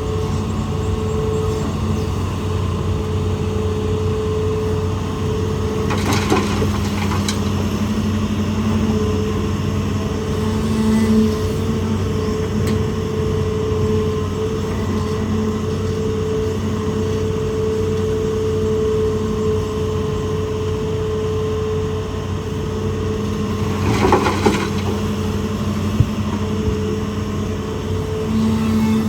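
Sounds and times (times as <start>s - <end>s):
excavator diesel engine droning: 0.0s - 29.0s
rock clattering and scraping: 5.7s - 9.3s, 23.4s - 26.5s.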